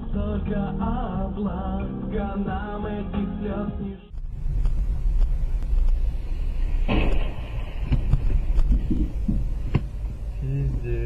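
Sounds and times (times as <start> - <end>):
car engine and road rumble: 4.1 - 11.0.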